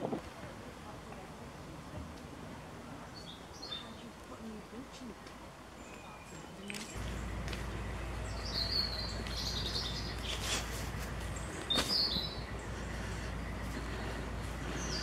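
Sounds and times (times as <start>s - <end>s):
small birds chirping: 2.6s - 15.0s
steady low rumble: 6.9s - 15.0s.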